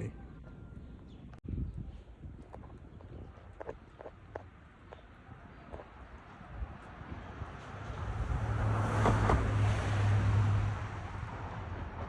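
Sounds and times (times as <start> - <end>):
vehicle passing: 6.6 - 12.0.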